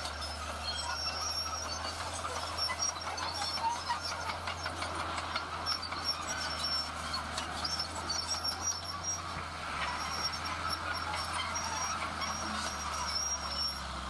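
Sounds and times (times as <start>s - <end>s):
crawler tracks squeaking: 0.0s - 14.0s
diesel engine hum: 0.0s - 14.0s
metallic clanking of tracks: 0.0s - 14.0s.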